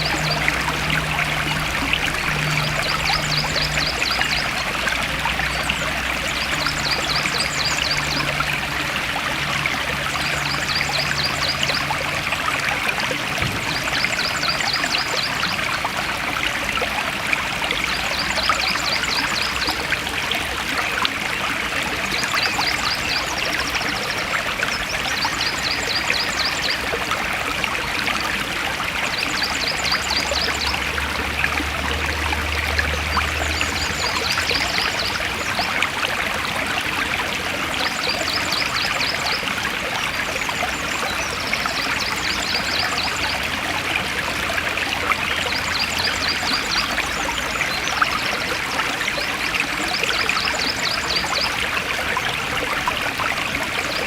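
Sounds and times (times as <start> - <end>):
stream flowing over rocks: 0.0 - 54.0.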